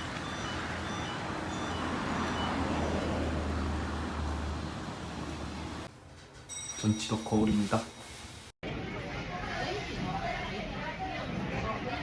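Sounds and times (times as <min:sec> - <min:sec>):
road traffic noise: 0:00.0 - 0:06.5.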